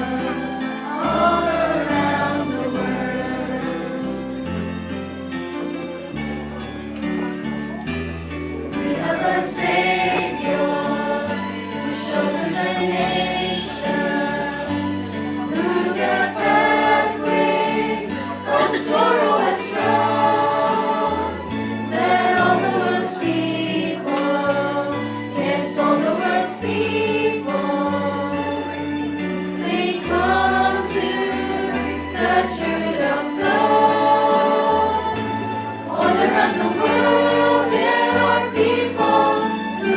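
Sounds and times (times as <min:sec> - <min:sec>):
group of voices singing: 0:00.0 - 0:04.9, 0:08.7 - 0:39.9.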